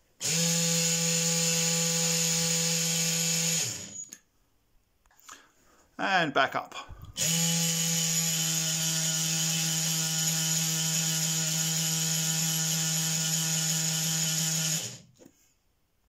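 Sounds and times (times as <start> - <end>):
small electric motor whirring: 0.2 - 4.1, 7.1 - 15.1.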